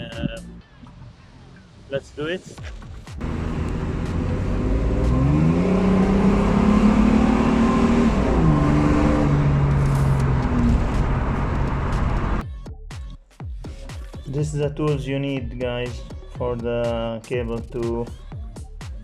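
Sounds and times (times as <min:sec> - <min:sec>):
car engine revving: 0:03.2 - 0:12.4.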